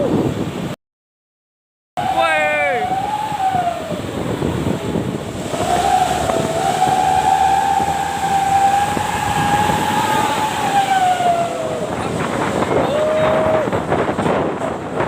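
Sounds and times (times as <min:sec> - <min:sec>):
truck engine and road noise: 0:03.4 - 0:15.0.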